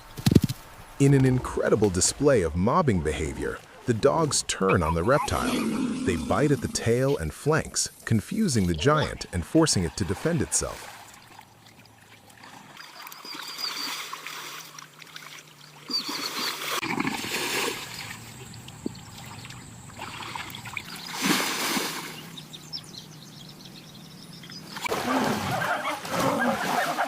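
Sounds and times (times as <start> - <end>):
animal calls: 4.6 - 7.2, 24.8 - 27.0
water splashing in muddy shallows: 9.5 - 22.3, 24.7 - 27.0.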